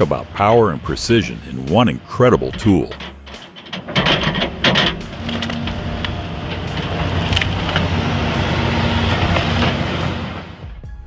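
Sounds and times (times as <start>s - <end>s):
diesel engine droning: 0.0s - 11.0s
wood cracking and splintering: 2.4s - 10.4s.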